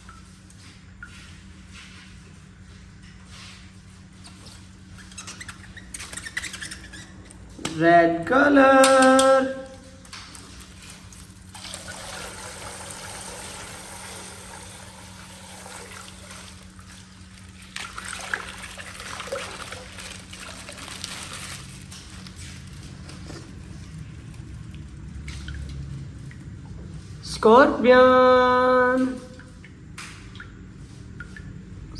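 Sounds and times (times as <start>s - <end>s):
water trickling from plastic pack: 8.8s - 27.2s.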